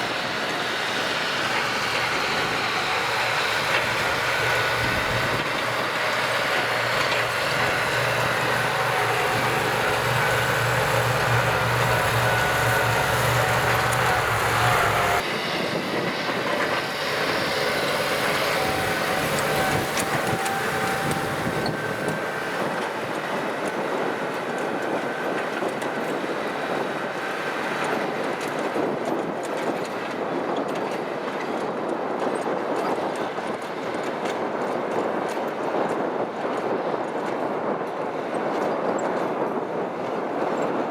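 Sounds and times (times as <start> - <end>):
tractor diesel engine running: 0.0 - 29.0
machine rattling: 0.2 - 15.2.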